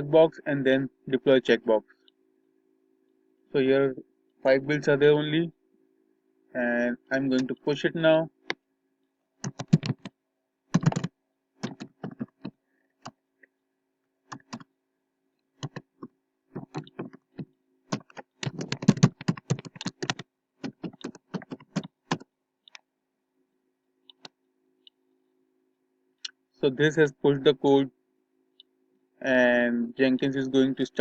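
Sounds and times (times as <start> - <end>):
faint steady hum: 0.0 - 31.0
typing on a keyboard: 9.4 - 10.1, 10.7 - 13.2, 14.3 - 14.7, 17.9 - 22.3.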